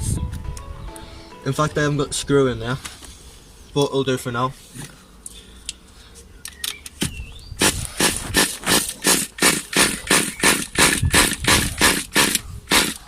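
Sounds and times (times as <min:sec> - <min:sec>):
engine being pull-started: 0:07.6 - 0:13.0.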